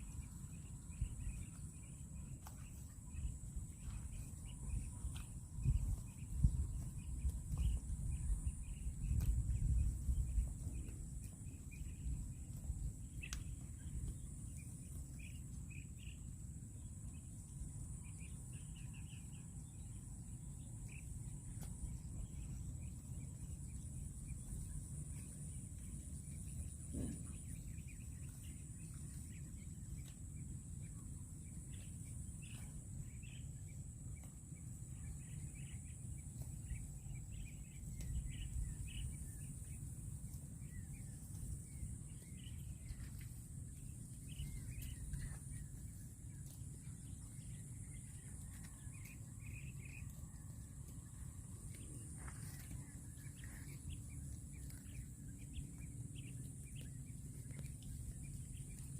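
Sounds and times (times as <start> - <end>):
low rumble: 0.0 - 58.9
bird chirps: 17.0 - 58.9.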